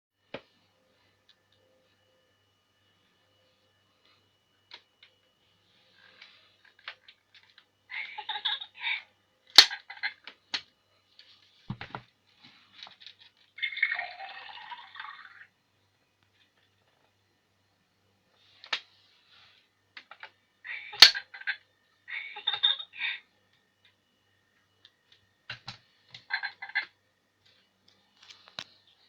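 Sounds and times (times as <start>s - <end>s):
toy water-pouring sound effect: 13.6s - 15.5s.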